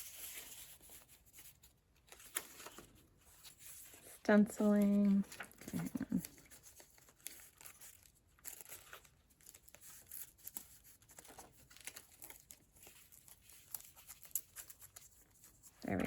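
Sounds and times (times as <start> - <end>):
paper pages rustling and crinkling: 0.0 - 16.0
small ticks of paper: 4.7 - 16.0.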